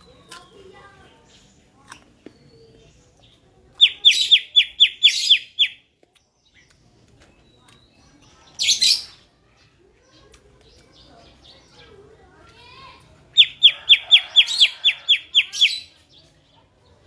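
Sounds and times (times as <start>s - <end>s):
bird harsh chattering: 3.8s - 5.8s, 8.6s - 9.2s, 13.3s - 16.0s.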